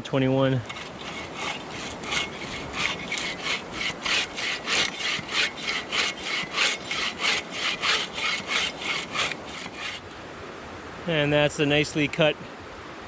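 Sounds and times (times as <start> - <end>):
bow saw cutting wood: 0.5 - 10.1.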